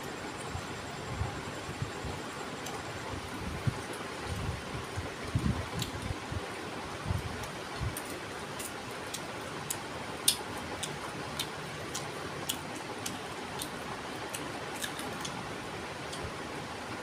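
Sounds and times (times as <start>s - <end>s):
steady background hiss: 0.0s - 17.0s
person chewing with smacking clicks: 5.8s - 6.1s, 7.4s - 15.4s.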